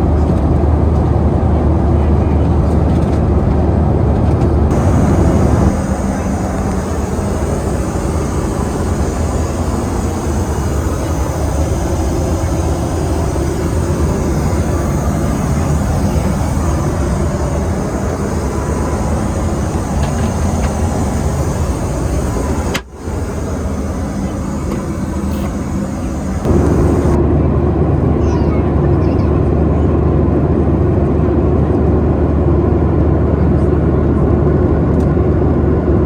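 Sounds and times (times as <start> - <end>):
airplane cabin engine roar: 0.0 - 36.0.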